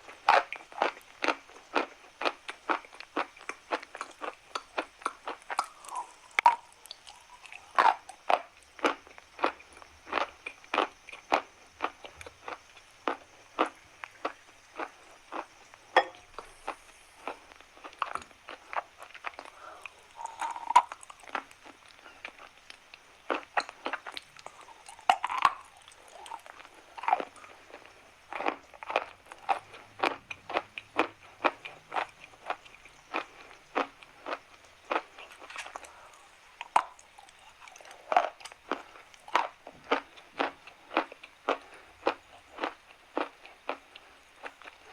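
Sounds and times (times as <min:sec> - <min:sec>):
chalk being chewed: 0:16.3 - 0:44.9.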